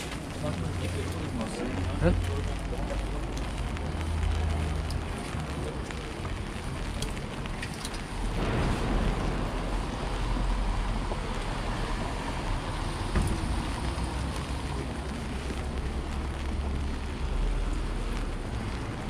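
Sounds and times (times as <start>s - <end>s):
low rumble: 0.0s - 19.0s
rain: 0.0s - 19.0s.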